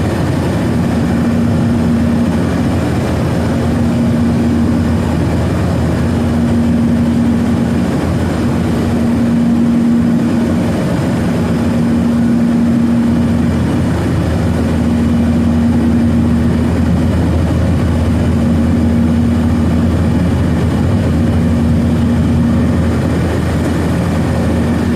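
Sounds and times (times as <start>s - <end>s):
airplane cabin engine roar: 0.0s - 24.9s
pulsing engine hum: 0.0s - 24.9s.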